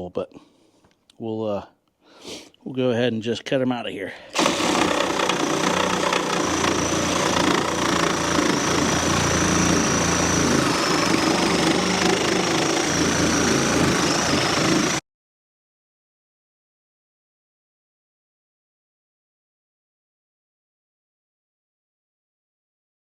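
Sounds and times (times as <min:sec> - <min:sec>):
reciprocating saw cutting wood: 0:04.3 - 0:15.0.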